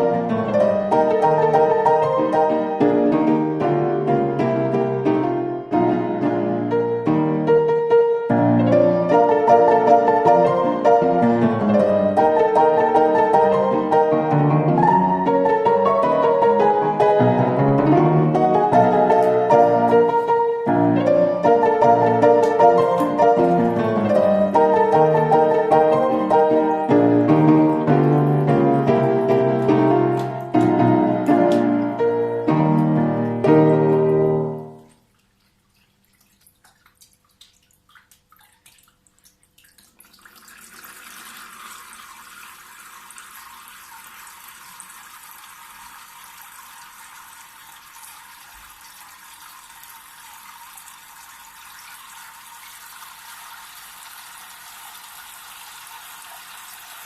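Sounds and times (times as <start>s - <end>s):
plucked piano-like music: 0.0s - 34.9s
fountain water trickling: 32.9s - 57.0s
faint water drips: 34.6s - 57.0s.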